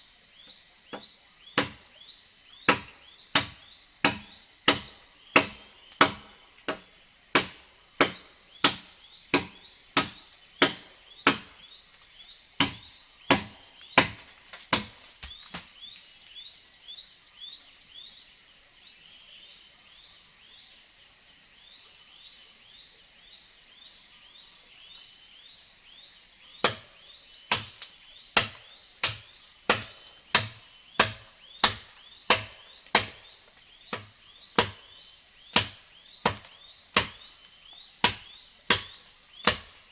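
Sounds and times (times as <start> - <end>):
axe chopping wood: 0.9 - 1.8, 2.7 - 11.6, 12.6 - 15.7, 26.6 - 33.3, 33.9 - 37.4, 38.0 - 39.9.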